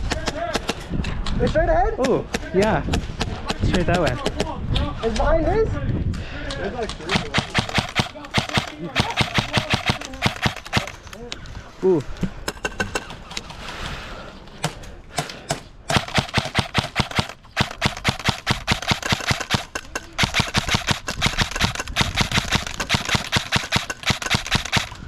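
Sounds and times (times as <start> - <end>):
airsoft guns firing: 7.0 - 11.2, 14.7 - 25.0.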